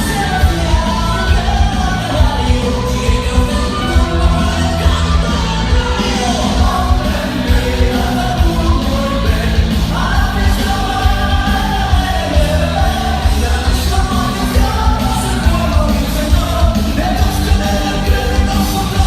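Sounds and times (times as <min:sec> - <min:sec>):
heavy bass: 0:00.0 - 0:19.0
rock music with singer: 0:00.0 - 0:19.0.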